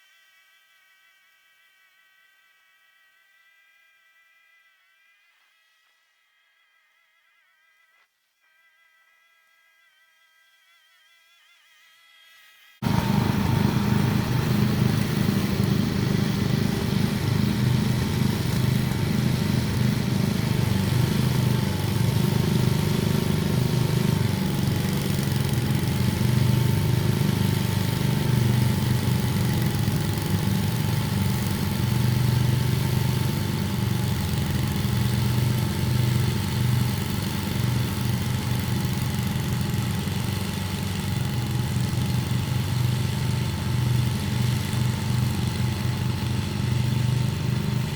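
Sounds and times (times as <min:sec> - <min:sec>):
engine running: 0:12.8 - 0:47.9.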